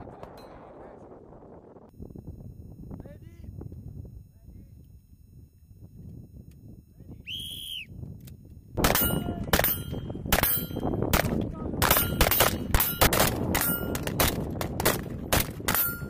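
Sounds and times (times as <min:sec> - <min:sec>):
wind rumble: 0:00.0 - 0:16.0
bullets ringing on steel targets: 0:08.8 - 0:14.4, 0:15.4 - 0:16.0
rifle fire: 0:08.8 - 0:16.0.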